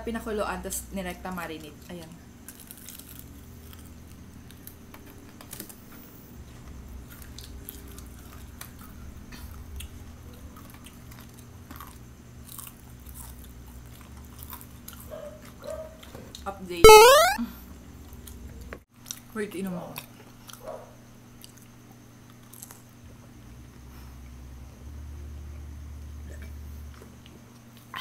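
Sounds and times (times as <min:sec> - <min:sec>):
people chewing fried chicken: 0:02.5 - 0:04.8, 0:09.3 - 0:15.6.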